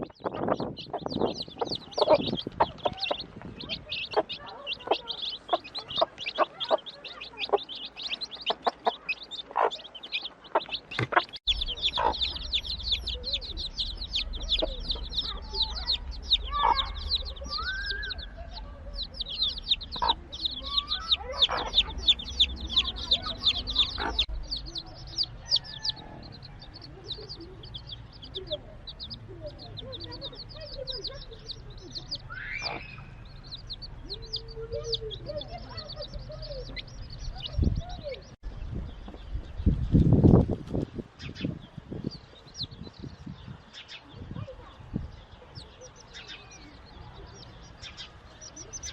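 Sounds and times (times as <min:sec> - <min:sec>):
hen clucking: 0:00.0 - 0:38.3
chicks peeping: 0:00.0 - 0:48.9.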